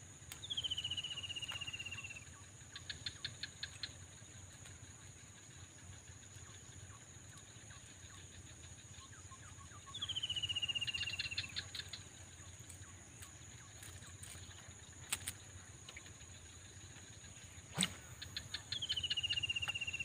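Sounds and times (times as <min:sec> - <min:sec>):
insect buzz: 0:00.0 - 0:20.0
faint ticks: 0:00.2 - 0:09.4, 0:10.0 - 0:20.0
bird trill: 0:00.4 - 0:04.0, 0:07.7 - 0:20.0.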